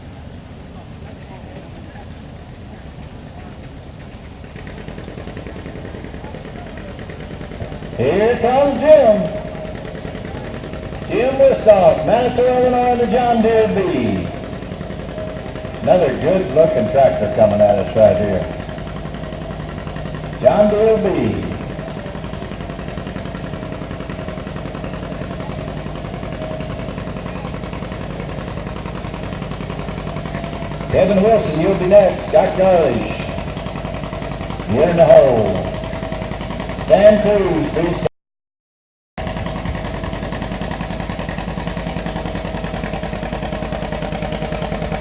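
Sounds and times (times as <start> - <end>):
two-cylinder engine running: 0.0 - 38.1, 39.2 - 45.0.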